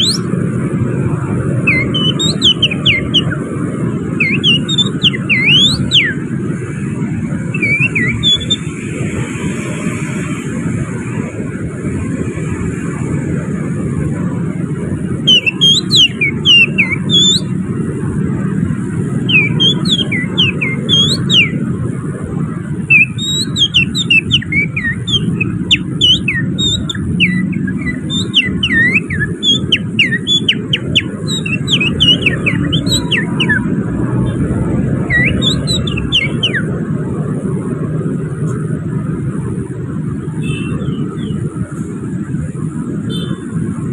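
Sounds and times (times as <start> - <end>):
finger whistling bird song: 0.0 - 0.4, 1.6 - 6.2, 7.5 - 8.8, 15.2 - 17.6, 19.2 - 21.7, 22.8 - 33.8, 34.9 - 36.7
traffic rumble: 0.0 - 43.9.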